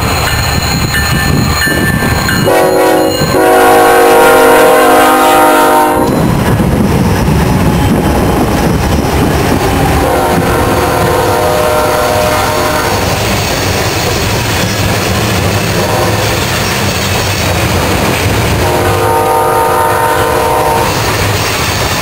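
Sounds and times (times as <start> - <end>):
diesel locomotive engines running: 0.0 - 22.0
locomotive air horn blasts: 2.5 - 6.2, 10.0 - 13.1, 15.8 - 16.2, 18.6 - 21.0.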